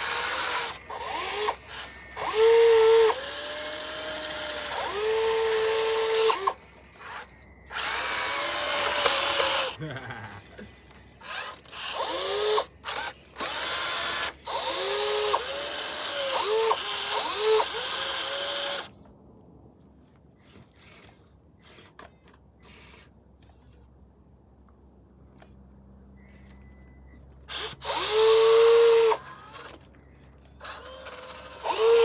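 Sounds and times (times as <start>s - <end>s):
electric motor whining: 0.0s - 19.0s, 27.5s - 29.8s, 30.6s - 32.0s.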